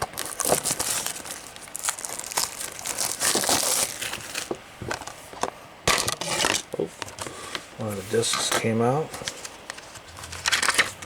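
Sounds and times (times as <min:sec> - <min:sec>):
plastic shrink-wrap crinkling: 0:00.0 - 0:05.1.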